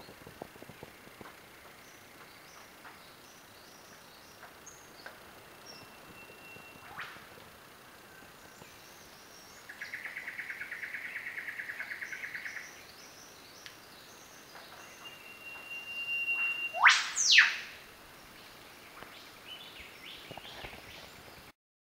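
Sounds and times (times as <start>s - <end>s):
faint bird chirps: 1.8s - 7.3s, 8.0s - 21.5s
bird whip-crack call: 6.8s - 7.3s, 15.5s - 17.7s.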